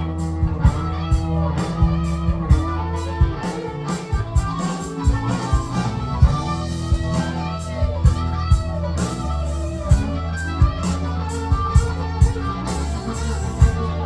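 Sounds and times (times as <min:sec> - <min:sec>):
bass guitar: 0:00.0 - 0:14.0
drum beat: 0:00.0 - 0:14.0
electric guitar playing: 0:00.0 - 0:14.0.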